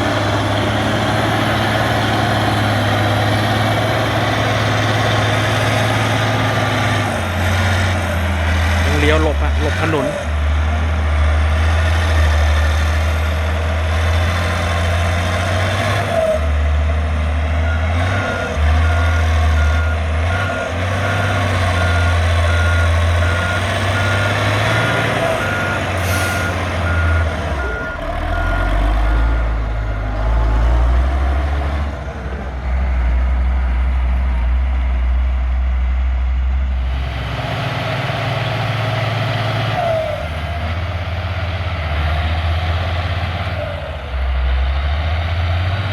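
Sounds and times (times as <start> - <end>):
heavy diesel engine: 0.0 - 45.9
reverse alarm beeping: 17.7 - 30.1.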